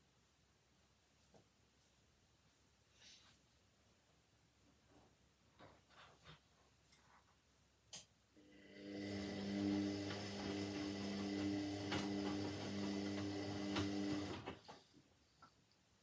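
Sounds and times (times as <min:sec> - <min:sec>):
washing machine motor hum: 0:08.4 - 0:14.7.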